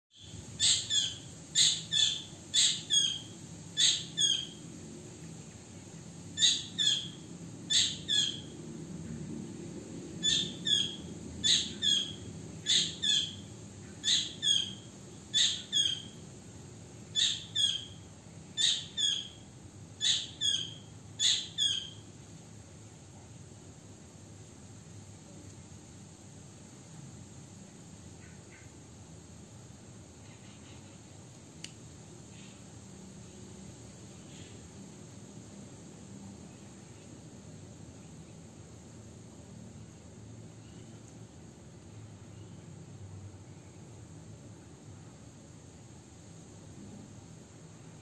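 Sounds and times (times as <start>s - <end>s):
bird chirping: 0.2s - 4.6s, 6.4s - 8.5s, 10.2s - 16.2s, 17.1s - 19.4s, 20.0s - 22.1s.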